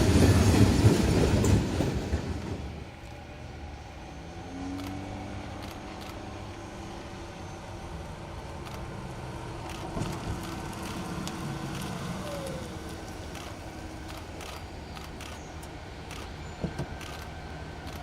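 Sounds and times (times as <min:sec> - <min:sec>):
low engine rumble: 0:01.6 - 0:18.0.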